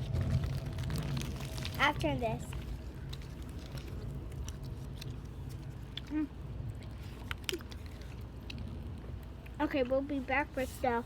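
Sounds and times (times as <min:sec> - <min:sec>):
low background hum: 0:00.0 - 0:11.0
gum chewing with wet clicks: 0:02.6 - 0:10.2.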